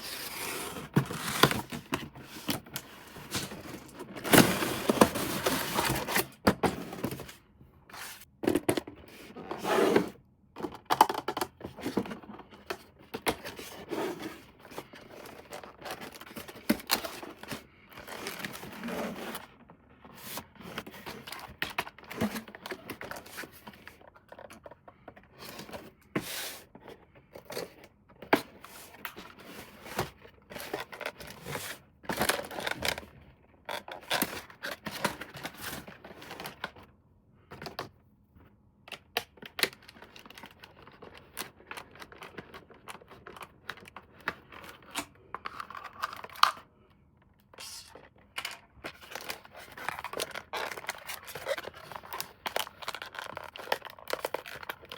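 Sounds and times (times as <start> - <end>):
packaging tearing and crinkling: 49.0 - 54.9.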